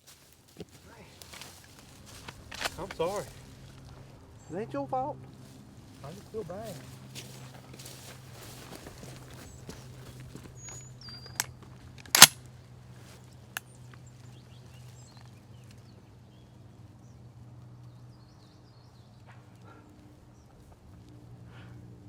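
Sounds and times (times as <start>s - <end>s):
bird chirping: 10.5s - 11.6s
sharp click: 11.4s - 12.4s
loud shotgun shot: 12.1s - 12.4s.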